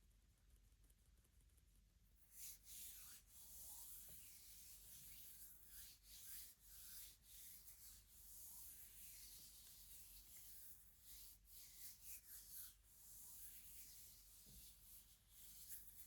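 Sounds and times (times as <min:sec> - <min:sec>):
hands rubbing and scratching surface: 0:02.3 - 0:16.0.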